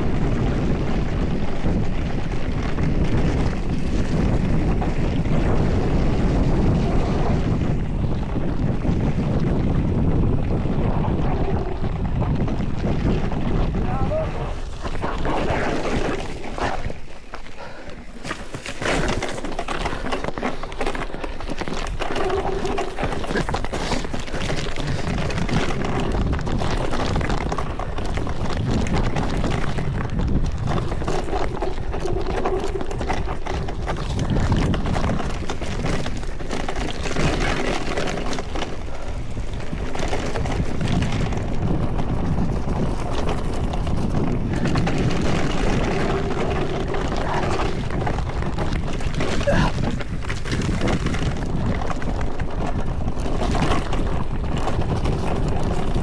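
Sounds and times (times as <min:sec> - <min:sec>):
bike rattling: 0:00.0 - 0:56.0
tyres clattering on dirt and stones: 0:14.4 - 0:56.0.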